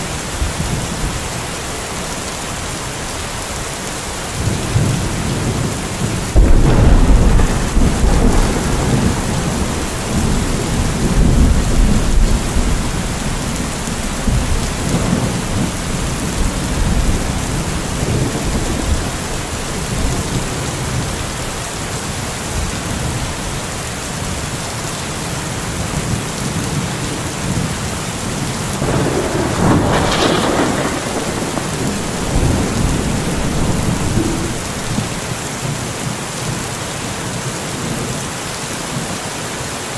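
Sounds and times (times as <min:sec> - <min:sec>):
steady rain: 0:00.0 - 0:39.9
thunder rumbling: 0:04.3 - 0:22.0, 0:26.1 - 0:36.0
sharp peal of thunder: 0:04.7 - 0:20.5, 0:28.8 - 0:35.4.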